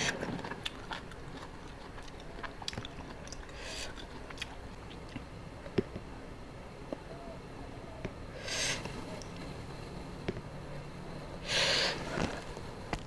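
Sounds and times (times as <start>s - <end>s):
mouth clicks and smacks: 0.0s - 5.3s
person chewing food: 0.0s - 6.0s.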